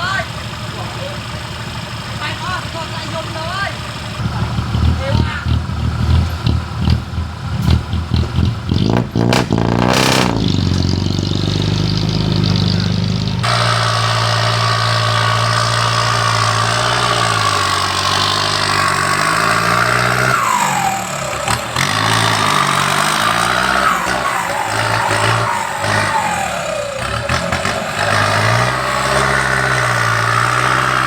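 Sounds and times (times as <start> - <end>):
heavy machinery engine running: 0.0 - 31.0.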